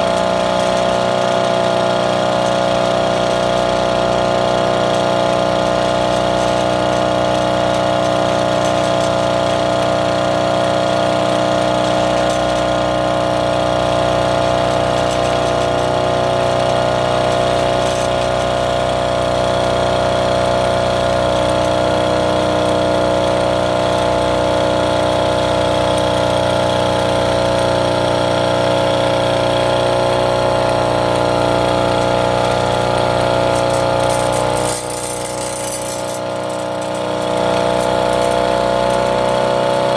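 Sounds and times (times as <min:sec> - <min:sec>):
small engine running steadily: 0:00.0 - 0:39.9.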